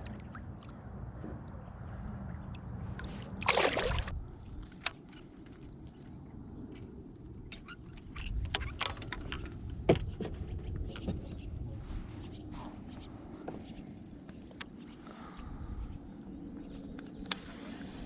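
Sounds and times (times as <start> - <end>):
water sloshing and splashing: 0.0 - 5.7
gear clicks and knocks: 7.5 - 11.3.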